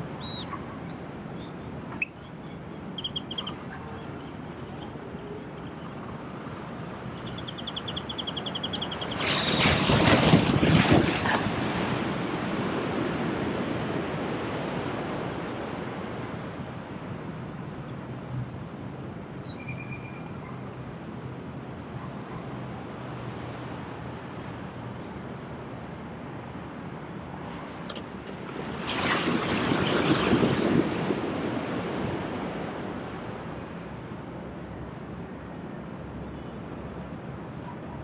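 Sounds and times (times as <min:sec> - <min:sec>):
sea waves washing ashore: 0:08.5 - 0:19.4, 0:25.5 - 0:37.6.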